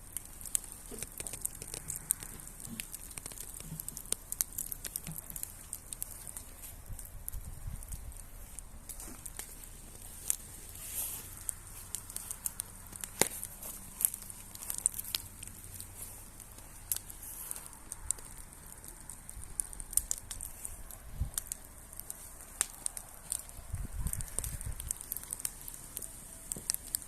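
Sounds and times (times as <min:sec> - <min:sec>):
campfire wood crackling and popping: 0:00.0 - 0:27.0
faint fire hiss: 0:00.0 - 0:27.0.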